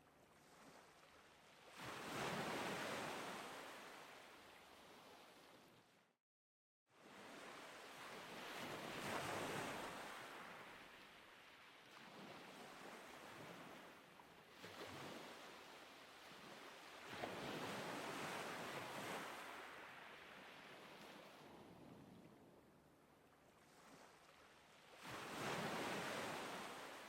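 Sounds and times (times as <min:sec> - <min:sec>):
waves washing in: 0:23.7 - 0:27.0.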